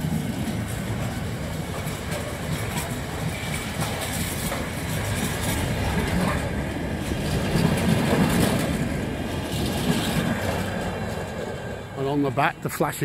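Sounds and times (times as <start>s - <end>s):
freight train wheels clattering: 0.0s - 13.0s.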